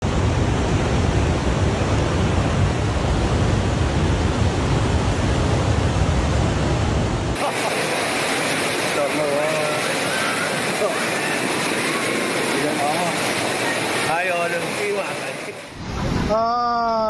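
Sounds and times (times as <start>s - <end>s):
loud rushing noise with rumble: 0.0s - 16.4s.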